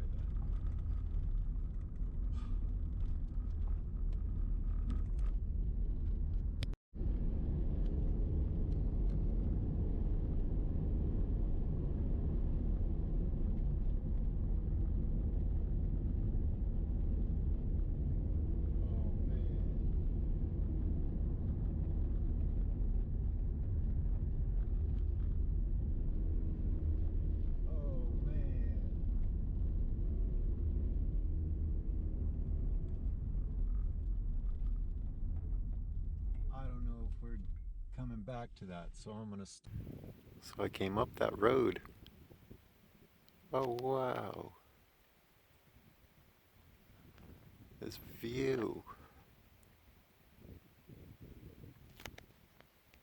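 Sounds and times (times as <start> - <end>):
car driving on gravel road: 0.0 - 10.0.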